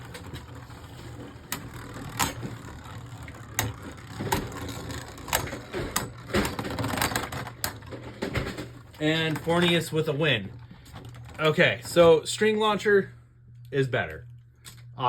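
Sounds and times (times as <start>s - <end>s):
spinning tops whirring: 0.0s - 8.0s.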